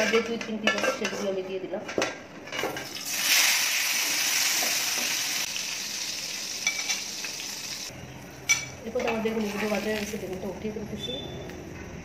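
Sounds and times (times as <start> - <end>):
eggplant slices sizzling in oil: 3.0 - 8.6.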